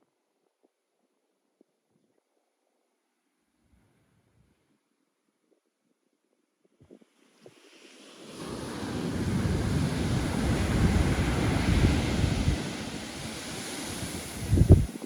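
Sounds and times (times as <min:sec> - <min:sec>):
ocean wave breaking: 0:07.6 - 0:15.0
wind buffeting microphone: 0:08.9 - 0:15.0.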